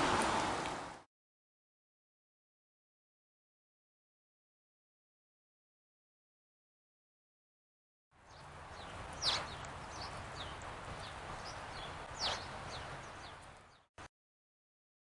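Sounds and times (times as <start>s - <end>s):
outdoor background noise: 0.0s - 1.0s, 8.2s - 13.9s
faint high bird chips: 9.2s - 10.2s
songbird calls sweeping down: 9.2s - 10.2s, 11.4s - 12.9s.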